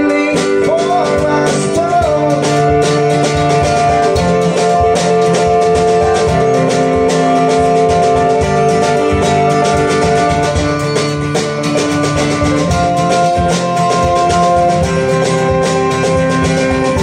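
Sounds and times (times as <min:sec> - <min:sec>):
acoustic guitar: 0:00.0 - 0:17.0
drums steady beat: 0:00.0 - 0:17.0.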